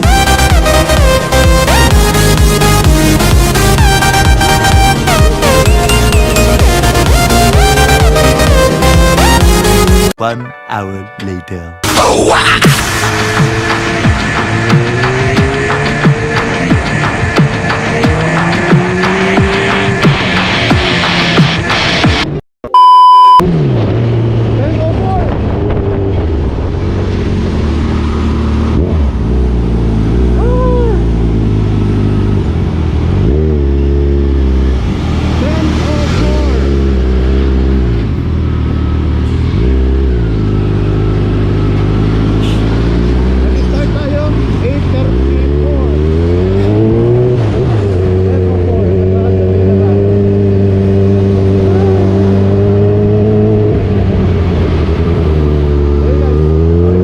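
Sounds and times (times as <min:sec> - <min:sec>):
motorcycle engine running: 0:00.0 - 0:10.1, 0:13.0 - 0:21.6
rising and falling tone: 0:00.0 - 0:10.2, 0:11.8 - 0:24.5
motorcycle engine upshifting: 0:12.8 - 0:22.3.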